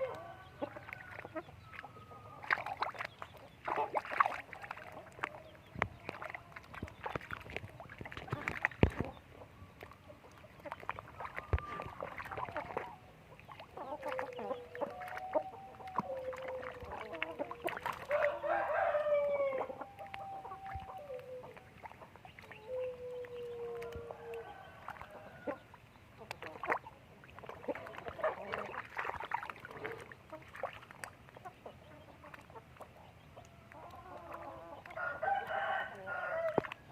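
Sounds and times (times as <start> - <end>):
chickens clucking: 0.0 - 36.9
chickens drawn-out calls: 0.0 - 36.9.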